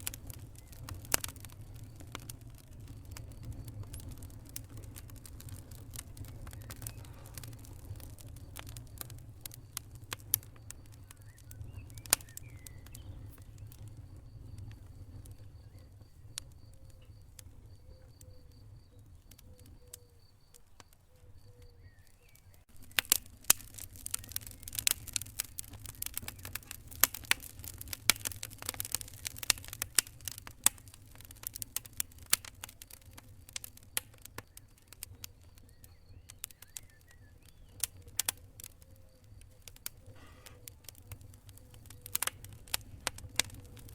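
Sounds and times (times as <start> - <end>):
fire crackling and popping: 0.0 - 43.9.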